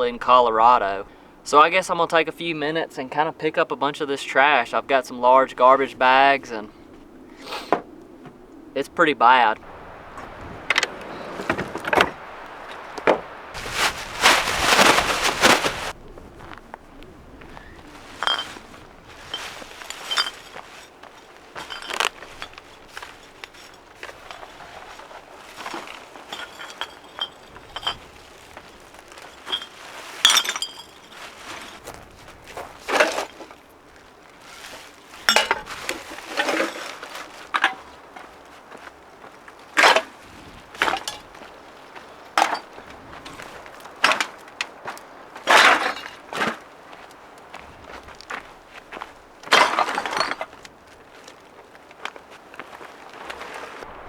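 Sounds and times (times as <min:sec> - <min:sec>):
plastic bag rustling: 0:09.7 - 0:16.0, 0:17.2 - 0:38.9
cans and glass clinking: 0:18.1 - 0:18.6, 0:19.2 - 0:20.9, 0:21.6 - 0:24.4, 0:25.5 - 0:31.3, 0:35.2 - 0:37.9, 0:42.4 - 0:42.8.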